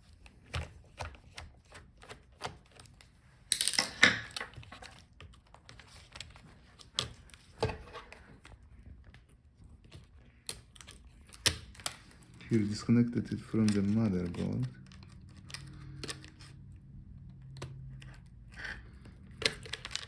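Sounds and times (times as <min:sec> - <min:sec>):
clicks and taps of laptop parts: 0:17.3 - 0:18.3.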